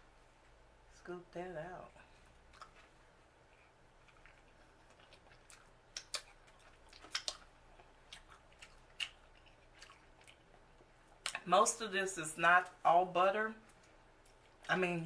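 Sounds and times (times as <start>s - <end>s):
quiet eating: 1.8s - 11.8s, 13.6s - 15.0s.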